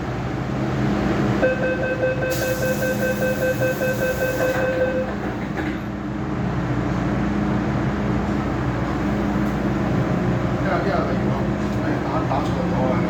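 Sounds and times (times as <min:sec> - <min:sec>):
train motors humming and rumbling: 0:00.0 - 0:13.0
door closing warning tone: 0:01.4 - 0:05.4.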